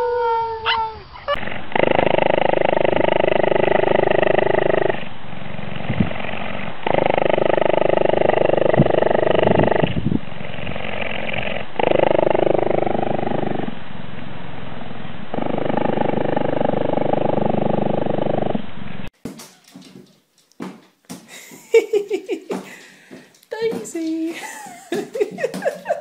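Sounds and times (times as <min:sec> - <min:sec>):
cheetah purring: 0:01.3 - 0:13.8, 0:14.7 - 0:18.6.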